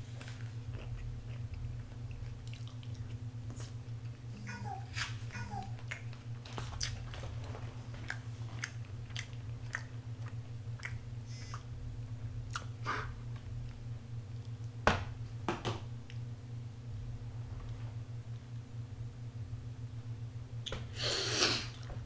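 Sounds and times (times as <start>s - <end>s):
low steady hum: 0.0s - 22.0s
person chewing: 0.2s - 4.2s, 5.8s - 7.2s, 7.9s - 11.7s
wet mouth clicks: 8.1s - 11.7s.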